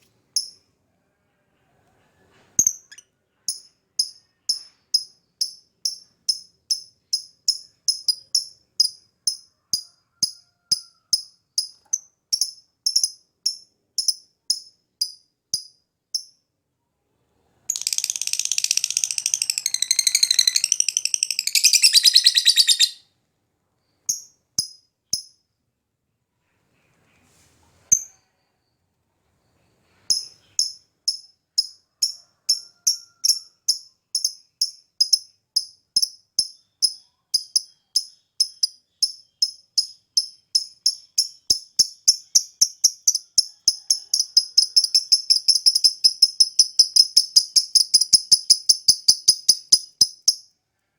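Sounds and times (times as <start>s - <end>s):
lovebird chirping and trilling: 2.6s - 9.5s, 17.7s - 23.0s, 30.1s - 50.5s.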